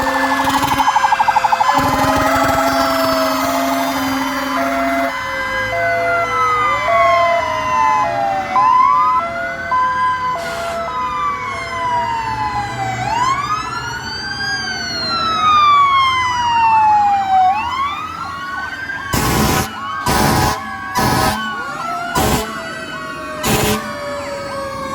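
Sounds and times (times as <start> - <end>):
loud horn blasts: 0.0 - 0.8, 1.6 - 5.2, 19.2 - 21.6, 22.2 - 22.6, 23.4 - 24.0
two-tone hi-lo siren: 0.0 - 24.9
wailing sirens: 0.0 - 24.9.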